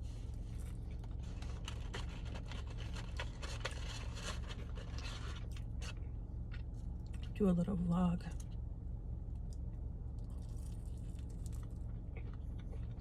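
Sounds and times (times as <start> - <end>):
steady low hum: 0.0 - 13.0
paper food wrappings rustling: 1.0 - 5.9.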